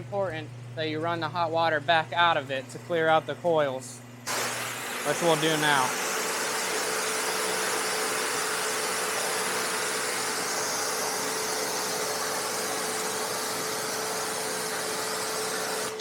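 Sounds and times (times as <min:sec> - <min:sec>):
pump humming: 0:00.0 - 0:16.0
pressure washer water hissing: 0:04.3 - 0:16.0.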